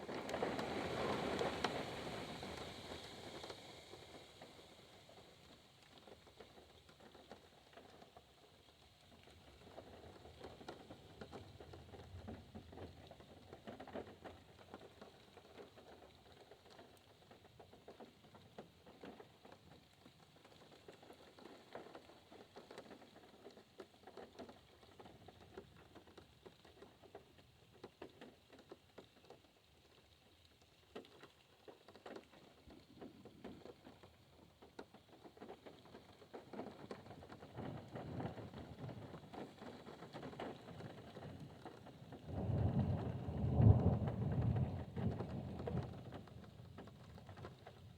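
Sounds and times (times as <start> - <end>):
rain pattering on a car: 0.0 - 47.9.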